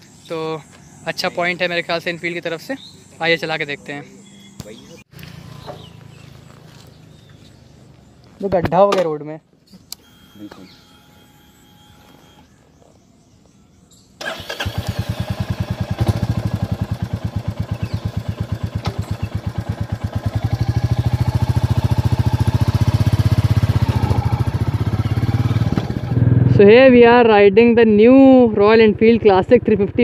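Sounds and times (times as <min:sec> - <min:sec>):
motorcycle engine starting and idling: 0:14.2 - 0:30.0.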